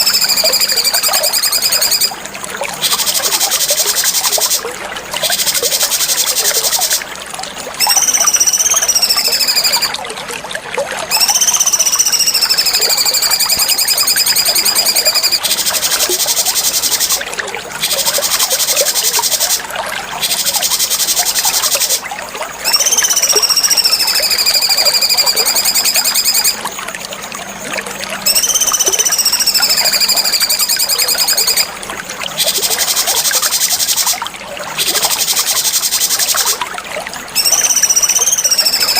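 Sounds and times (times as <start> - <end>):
bird whistles sliding down: 0.0 - 2.2, 2.8 - 4.6, 5.2 - 7.0, 7.8 - 9.9, 11.1 - 17.2, 17.8 - 19.6, 20.2 - 22.0, 22.6 - 26.6, 28.2 - 31.7, 37.4 - 38.9.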